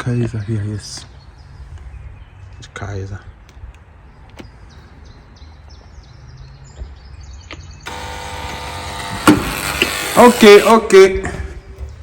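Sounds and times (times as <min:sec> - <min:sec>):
electric door buzzer: 0:07.8 - 0:11.0.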